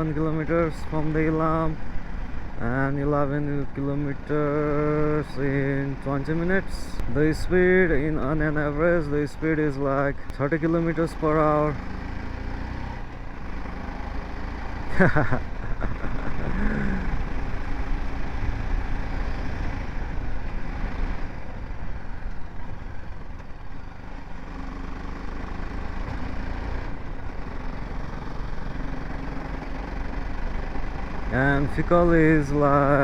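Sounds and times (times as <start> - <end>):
motorcycle engine running: 10.2 - 33.0.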